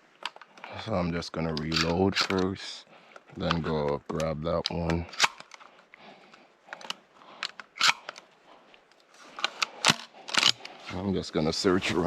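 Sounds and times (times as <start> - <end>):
gun reloading clicks: 1.5 - 2.6, 3.2 - 8.3, 9.3 - 10.8.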